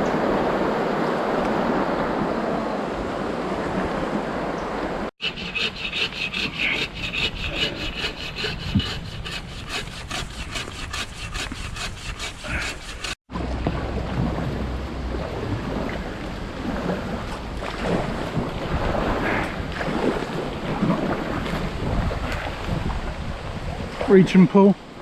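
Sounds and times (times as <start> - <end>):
rushing water: 0.0 - 25.0
wind: 0.0 - 25.0
fast rhythmic scraping: 5.2 - 13.2.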